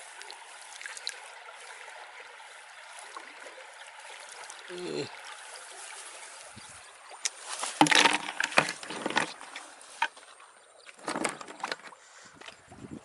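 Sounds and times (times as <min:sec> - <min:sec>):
splashing in shallow water: 0:00.0 - 0:13.0.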